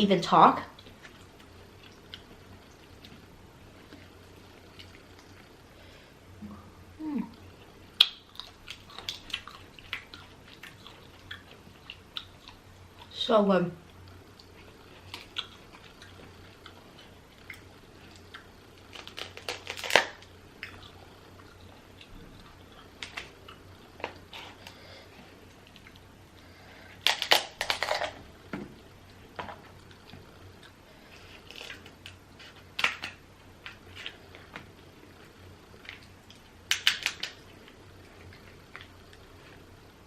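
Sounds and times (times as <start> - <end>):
seafood shells cracking: 18.9 - 20.3, 27.0 - 28.2, 31.4 - 34.2, 36.6 - 37.4.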